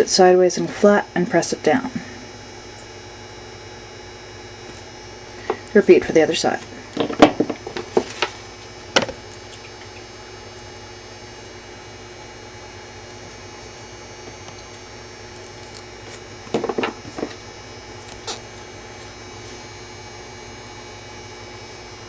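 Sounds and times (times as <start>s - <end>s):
low background hum: 0.0s - 22.0s
pliers clicking and scraping wire: 12.9s - 17.4s.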